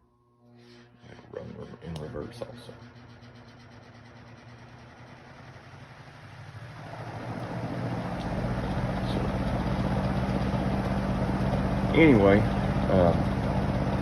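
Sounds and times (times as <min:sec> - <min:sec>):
box fan motor humming: 0:00.6 - 0:14.0.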